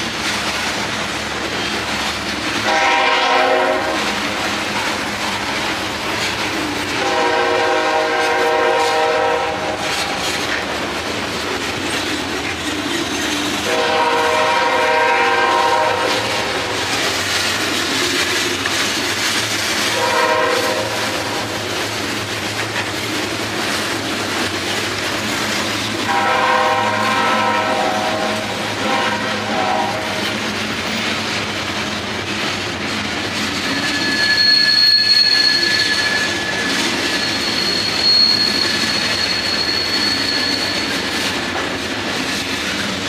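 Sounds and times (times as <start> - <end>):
freight train wheel clatter: 0.0 - 43.0
train air horn blasts: 2.6 - 4.2, 7.0 - 10.2, 13.6 - 16.8, 19.9 - 21.6, 26.0 - 30.3.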